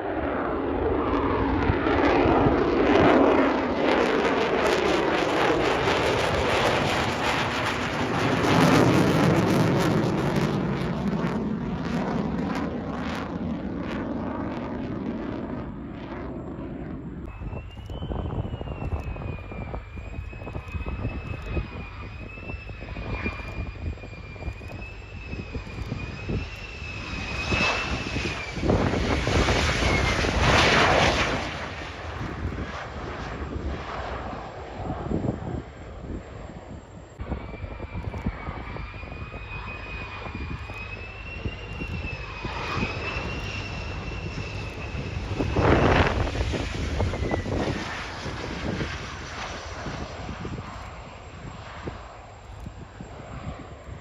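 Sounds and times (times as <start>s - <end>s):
high wavering jet whine: 0.0s - 54.0s
jet engine rumble: 0.0s - 54.0s
rushing air noise: 17.2s - 54.0s.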